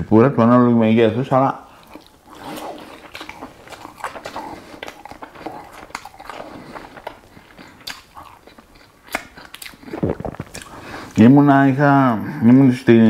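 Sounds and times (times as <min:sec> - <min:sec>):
person chewing food: 0:01.6 - 0:11.2.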